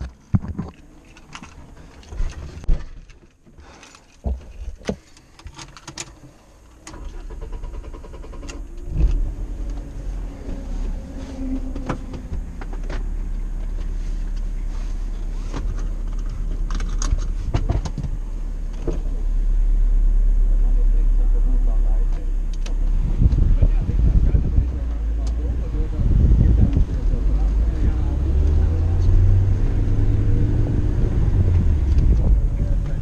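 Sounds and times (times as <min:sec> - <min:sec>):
car engine cranking and idling: 0:00.0 - 0:33.0
clicks and knocks in car cabin: 0:15.5 - 0:18.2.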